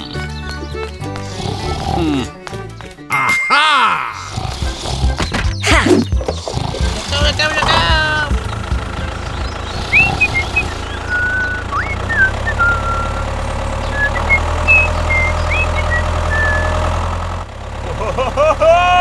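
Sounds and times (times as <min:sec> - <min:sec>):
tractor engine running: 0:00.0 - 0:03.1, 0:04.3 - 0:19.0
high chirping whistles: 0:09.7 - 0:16.8.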